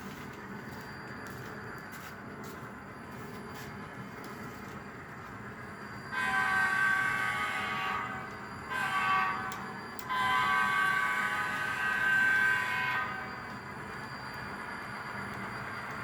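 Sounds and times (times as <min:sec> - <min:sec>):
model locomotive engine rumble: 0:00.0 - 0:16.0
multi-note air horn: 0:06.2 - 0:13.3.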